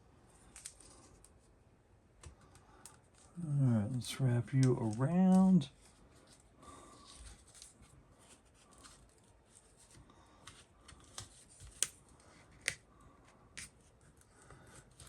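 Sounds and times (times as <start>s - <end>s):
electrical tape crackling off roll: 2.9s - 5.8s.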